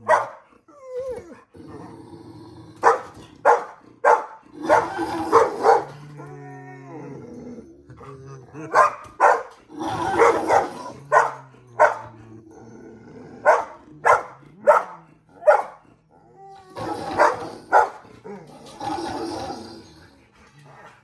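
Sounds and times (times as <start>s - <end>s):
dog barking: 0.0s - 0.5s, 2.8s - 6.0s, 8.7s - 12.1s, 13.4s - 15.9s, 16.8s - 18.0s.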